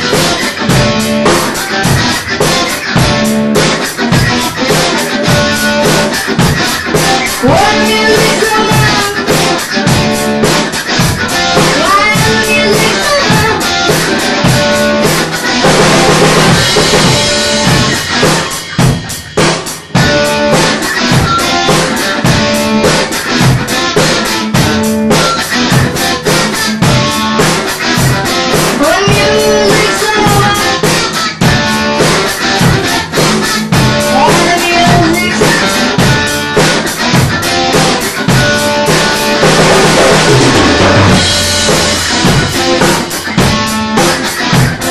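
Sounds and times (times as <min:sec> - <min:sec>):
rock band playing: 0:00.0 - 0:44.9.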